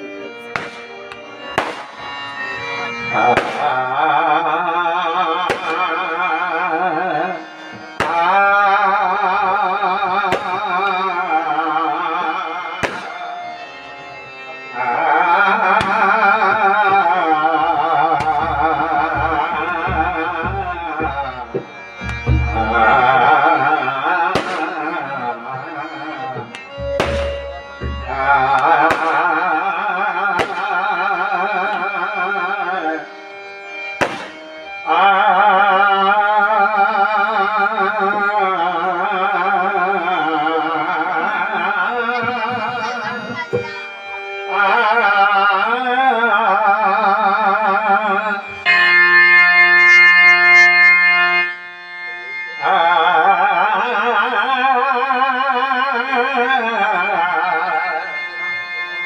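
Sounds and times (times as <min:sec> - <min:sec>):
harmonium: 0:00.0 - 0:59.0
sharp percussion strokes: 0:00.5 - 0:03.8, 0:12.8 - 0:13.6, 0:17.6 - 0:25.0, 0:26.0 - 0:29.5, 0:30.4 - 0:30.8, 0:34.0 - 0:34.7
person singing wavering phrases: 0:02.7 - 0:33.4, 0:34.7 - 0:48.7, 0:51.4 - 0:59.0.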